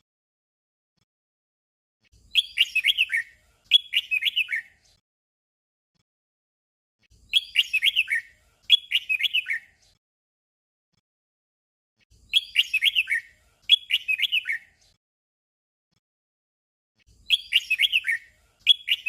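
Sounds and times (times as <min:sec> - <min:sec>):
bird warbling song: 0:02.2 - 0:05.0, 0:07.1 - 0:10.0, 0:12.1 - 0:14.9, 0:17.1 - 0:19.0.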